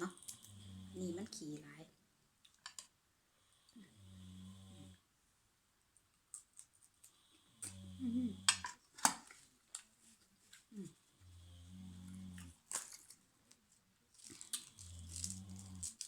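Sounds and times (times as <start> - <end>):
prawn shells clicking and chewing: 0.1 - 0.5, 6.3 - 7.8, 12.4 - 16.0
person humming mmm: 7.6 - 8.6, 10.7 - 11.0, 14.8 - 16.0
loud crunches: 14.2 - 16.0.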